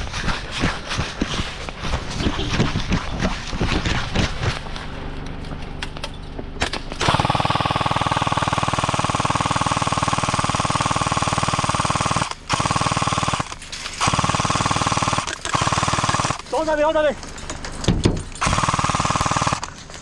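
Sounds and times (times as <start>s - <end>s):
airsoft gun firing full-auto: 6.6s - 16.6s, 18.4s - 19.8s.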